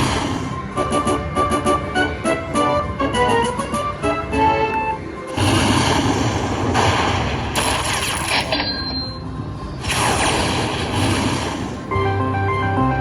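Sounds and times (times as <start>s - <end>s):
slot machine booming bursts: 0.0s - 1.3s, 5.3s - 8.6s, 9.8s - 12.0s
slot machine jingle: 0.6s - 5.2s.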